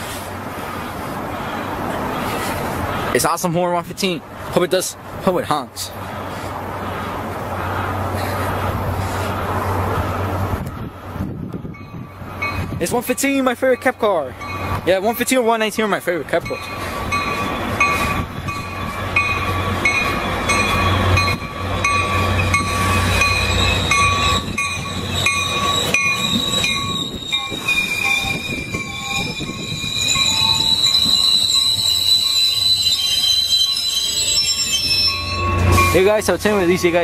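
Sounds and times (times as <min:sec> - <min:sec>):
low train rumble: 0:00.0 - 0:37.0
train wheels and brakes squealing: 0:07.6 - 0:15.4, 0:16.4 - 0:37.0.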